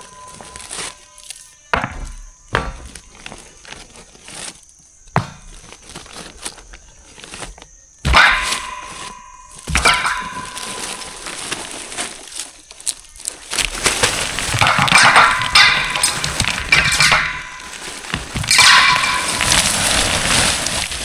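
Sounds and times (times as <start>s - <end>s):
sharp knocks: 1.7s - 3.5s, 5.1s - 5.8s.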